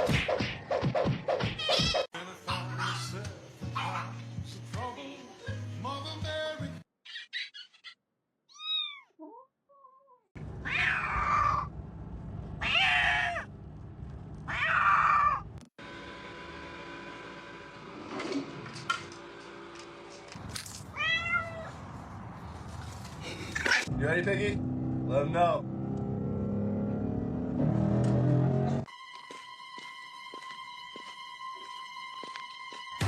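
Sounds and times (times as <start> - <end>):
pet crying: 7.1 - 11.7, 12.6 - 13.5, 14.5 - 15.5, 21.0 - 21.7.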